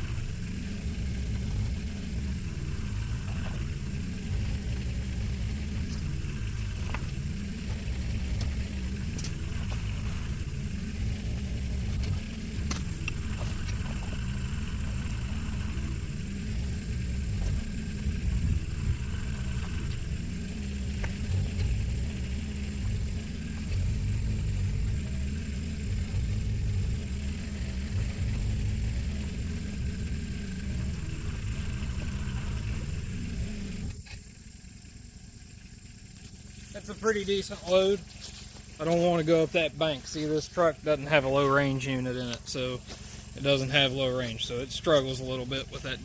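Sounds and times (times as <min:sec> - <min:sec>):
heavy machine engine running: 0:00.0 - 0:46.0
sharp clicks and knocks: 0:05.8 - 0:10.4, 0:11.9 - 0:14.3.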